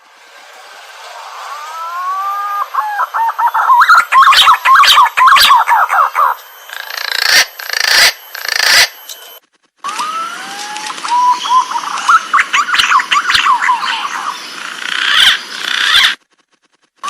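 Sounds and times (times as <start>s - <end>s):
pigeon whistling calls: 1.5s - 9.0s, 10.0s - 14.4s
harsh bird bursts: 1.5s - 9.1s, 9.9s - 16.2s.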